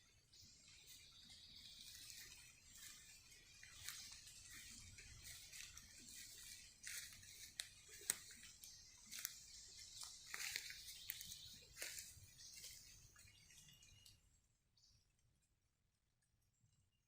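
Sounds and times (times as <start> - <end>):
rain drips ticking and pattering: 0.6 - 14.3.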